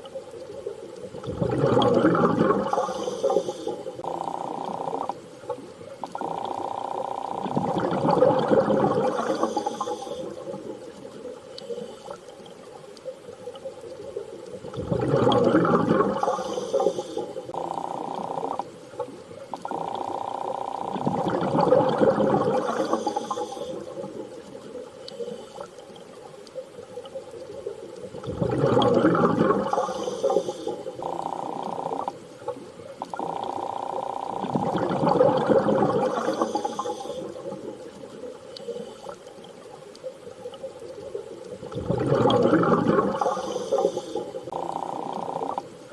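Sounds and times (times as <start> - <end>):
underwater washes of sound: 0.2 - 6.6, 7.4 - 19.9, 20.8 - 33.6, 34.3 - 45.9
whale song-like calls: 28.7 - 37.8, 42.1 - 45.7.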